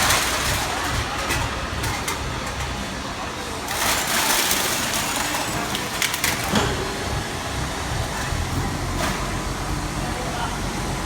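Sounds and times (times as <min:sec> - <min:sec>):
hydraulic baler crushing metal: 0:00.0 - 0:10.3
metal cracking: 0:03.6 - 0:09.4.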